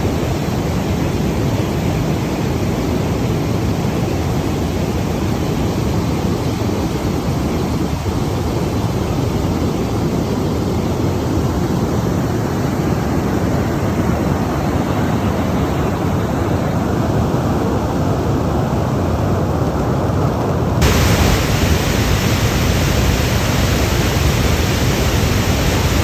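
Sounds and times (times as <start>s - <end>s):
waterfall rushing: 20.8s - 26.0s.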